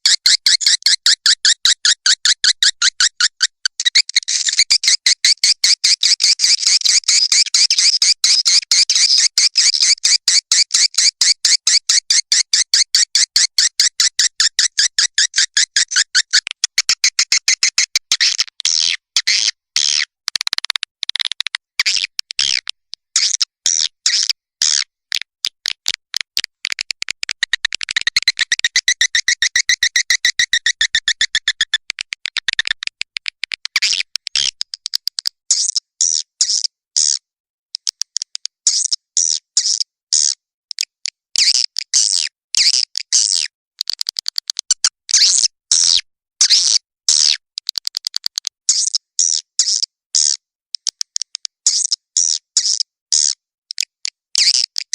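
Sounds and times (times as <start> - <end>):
high twittering bird chirps: 0.2 - 10.2, 27.9 - 31.8.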